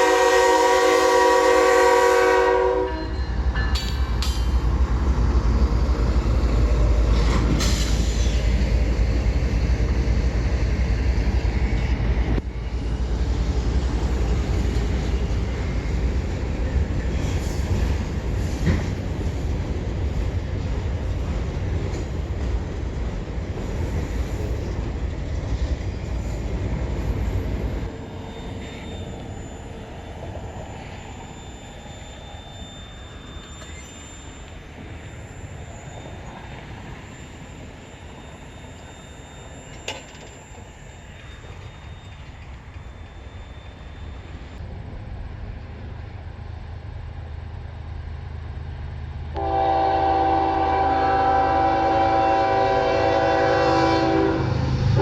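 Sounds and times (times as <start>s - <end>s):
train rumbling on rails: 0.0s - 55.0s
wheels squealing: 25.4s - 44.6s.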